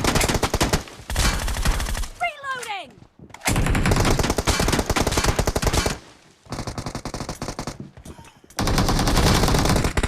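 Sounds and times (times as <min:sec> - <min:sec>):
video game automatic gunfire: 0:00.0 - 0:02.2, 0:03.5 - 0:07.8, 0:08.6 - 0:10.0.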